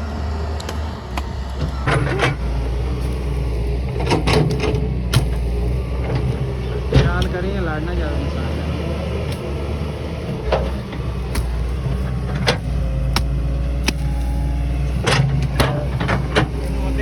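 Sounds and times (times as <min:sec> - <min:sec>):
diesel engine running: 0:00.0 - 0:17.0
sharp knocks and clanks: 0:03.9 - 0:08.0, 0:10.3 - 0:14.2, 0:14.8 - 0:17.0.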